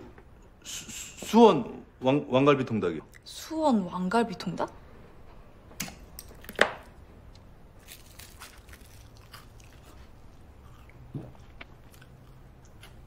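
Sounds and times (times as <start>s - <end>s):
crunching fried chicken: 7.8s - 13.0s.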